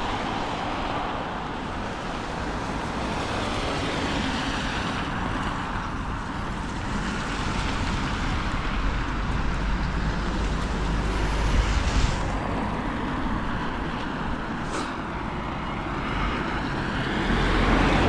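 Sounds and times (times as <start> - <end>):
road traffic hiss: 0.0 - 18.0
wind buffeting microphone: 5.1 - 18.0.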